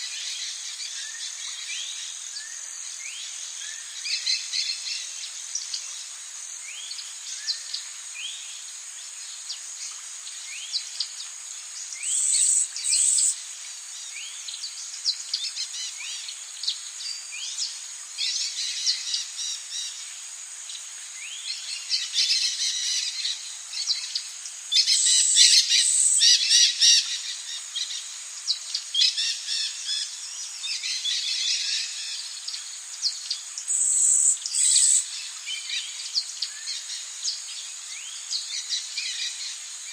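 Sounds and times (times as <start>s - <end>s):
high-pitched insect drone: 11.4s - 39.9s.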